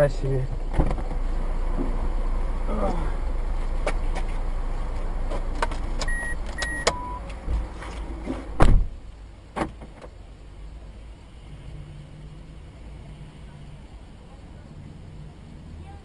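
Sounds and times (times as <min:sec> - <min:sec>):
road rumble inside car: 0:00.0 - 0:16.0
loud thump: 0:00.7 - 0:01.2, 0:08.4 - 0:09.0
short electronic beeps: 0:06.1 - 0:07.2.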